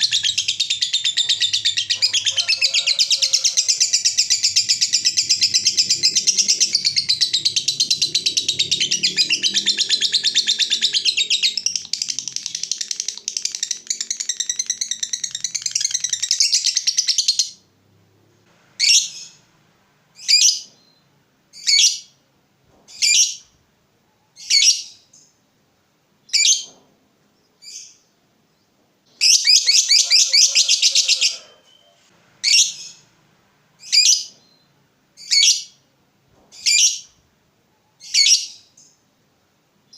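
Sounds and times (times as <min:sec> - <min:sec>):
lovebird rapid chatter: 0:00.0 - 0:17.3.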